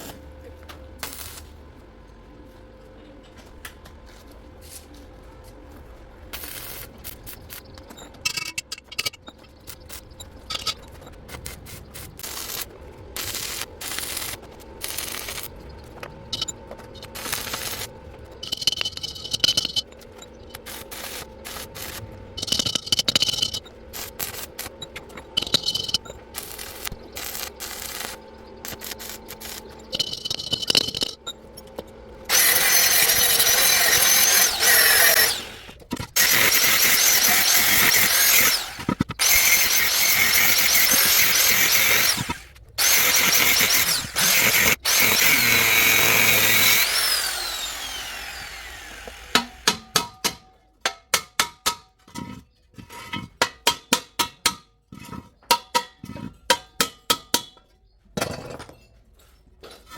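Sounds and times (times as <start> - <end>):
power tool cutting metal: 12.2 - 19.8, 20.5 - 31.2, 32.3 - 49.7.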